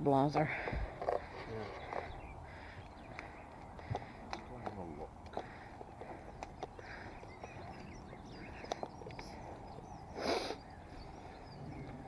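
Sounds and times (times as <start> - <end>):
faint birdsong: 0.0 - 12.0.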